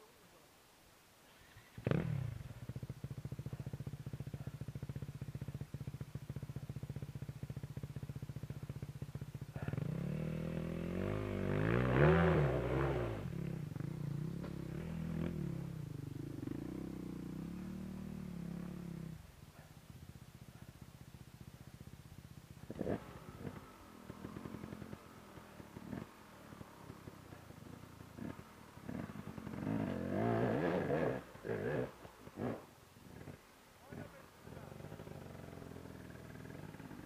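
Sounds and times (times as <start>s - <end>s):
dirt bike engine revving: 1.8s - 19.4s, 22.4s - 37.0s.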